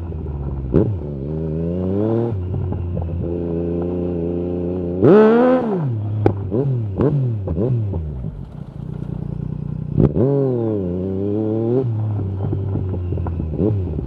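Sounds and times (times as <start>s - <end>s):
motorcycle engine revving: 0.0s - 14.0s
exhaust pops and crackles: 8.2s - 10.1s.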